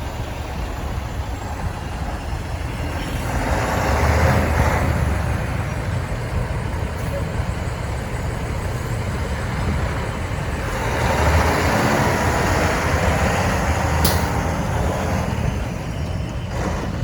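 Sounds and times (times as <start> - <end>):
diesel truck engine rumbling: 0.0 - 17.0
short sharp click: 14.0 - 14.5.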